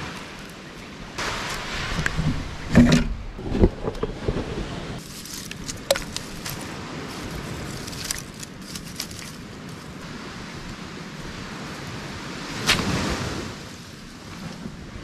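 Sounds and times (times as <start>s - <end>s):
wind: 0.0s - 15.0s
twigs snapping and crackling: 5.0s - 9.5s.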